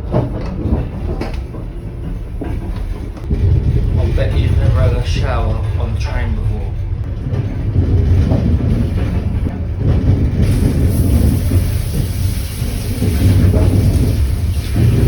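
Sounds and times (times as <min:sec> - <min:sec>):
low steady rumble: 0:00.4 - 0:15.0
shower water spraying: 0:10.4 - 0:15.0.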